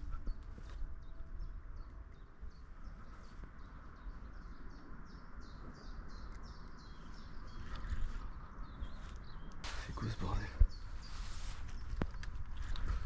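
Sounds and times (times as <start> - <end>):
bird chirping: 0.0 - 13.0
wind rumble on microphone: 0.0 - 13.0
outdoor hiss: 9.6 - 10.4.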